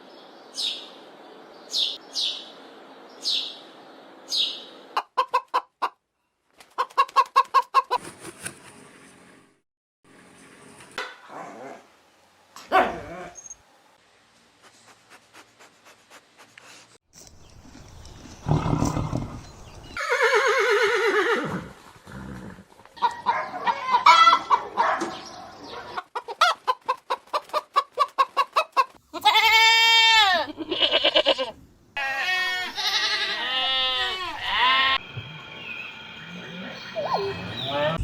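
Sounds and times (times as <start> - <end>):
hens clucking: 4.9 - 6.0, 6.6 - 8.1, 23.0 - 24.8, 25.9 - 29.0
goats bleating: 29.1 - 35.0.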